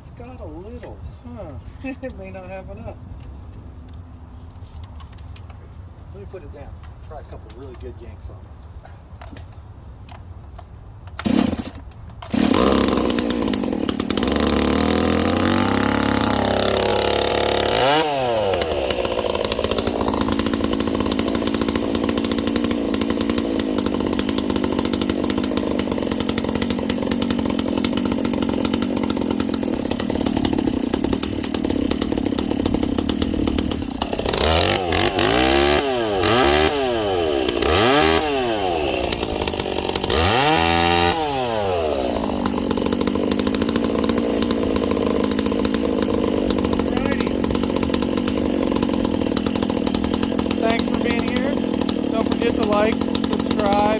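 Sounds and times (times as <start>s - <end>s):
chainsaw pull cord start: 10.6s - 53.9s
chainsaw engine revving: 11.2s - 53.9s.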